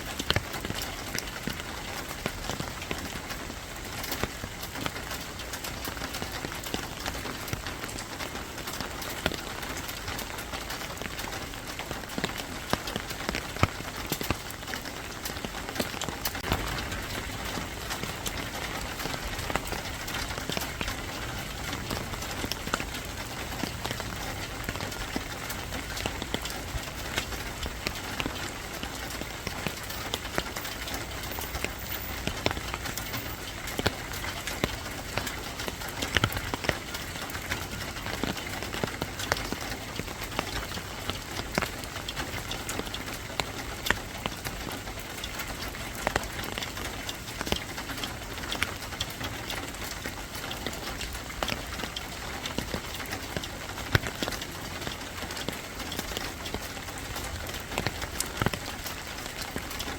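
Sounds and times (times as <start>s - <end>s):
raindrops tapping on hard surface: 0.0s - 59.9s
steady rain hiss: 0.0s - 59.9s.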